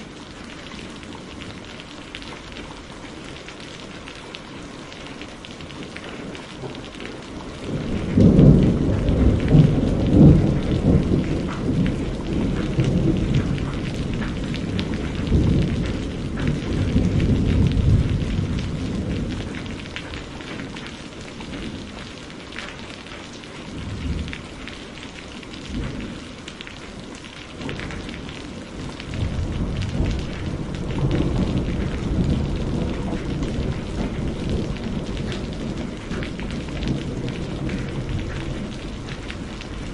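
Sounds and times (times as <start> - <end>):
steady rain: 0.0 - 39.9
rolling thunder: 6.6 - 22.1, 25.6 - 26.3, 27.6 - 39.9.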